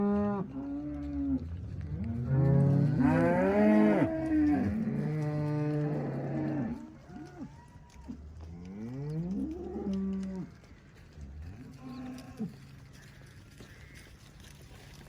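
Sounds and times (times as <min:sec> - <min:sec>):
cows mooing: 0:00.0 - 0:07.4.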